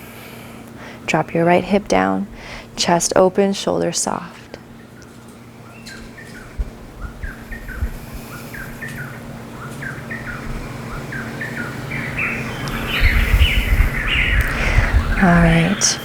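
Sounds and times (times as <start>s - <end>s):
birds calling: 4.6s - 16.0s.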